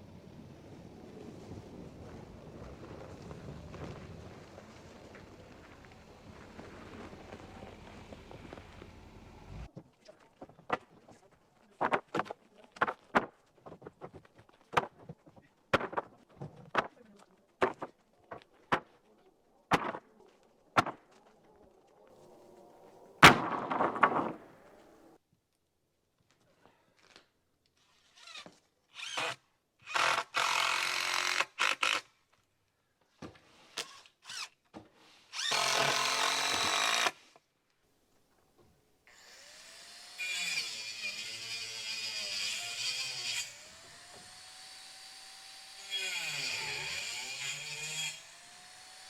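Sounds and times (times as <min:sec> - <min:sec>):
sharp bang: 0:23.2 - 0:25.0
power drill driving screws: 0:28.0 - 0:32.1, 0:33.8 - 0:34.6, 0:35.3 - 0:37.4, 0:39.1 - 0:49.0.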